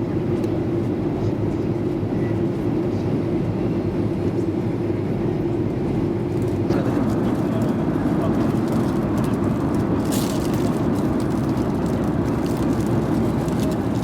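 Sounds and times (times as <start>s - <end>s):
airplane cabin engine drone: 0.0s - 14.0s.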